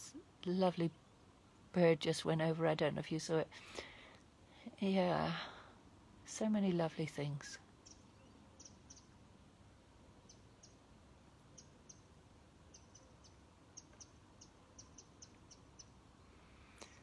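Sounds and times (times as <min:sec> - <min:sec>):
faint low outdoor background: 0:00.0 - 0:17.0
faint bird chirps: 0:07.8 - 0:09.2, 0:10.2 - 0:10.8, 0:11.4 - 0:17.0.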